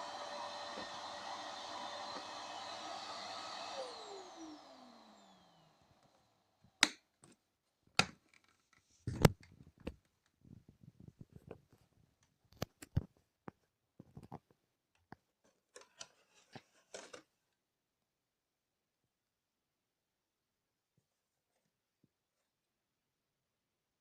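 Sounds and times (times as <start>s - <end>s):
vacuum cleaner motor whine: 0.0s - 6.8s.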